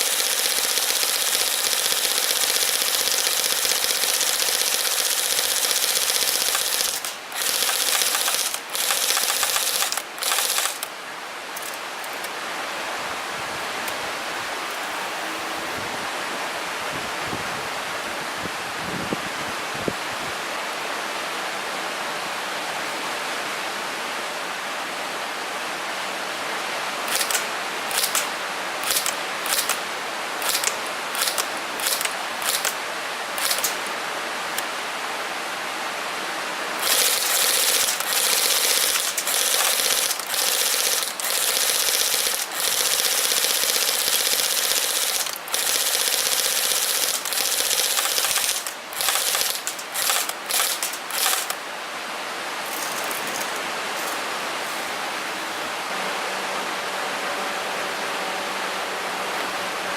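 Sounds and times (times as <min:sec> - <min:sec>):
airsoft gun firing: 0:00.0 - 0:10.9, 0:27.1 - 0:32.8, 0:33.4 - 0:33.9, 0:36.8 - 0:51.6.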